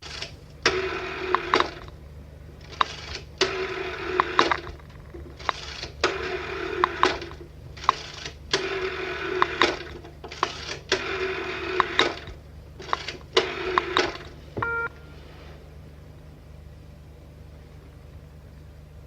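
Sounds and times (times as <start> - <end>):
steady low hum: 0.0 - 19.0
telephone mechanism rattling: 11.8 - 14.4
short beep: 14.6 - 15.3.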